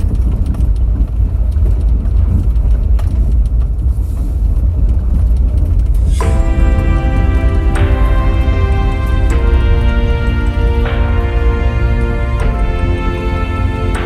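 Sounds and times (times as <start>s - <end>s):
background music: 6.1s - 14.0s.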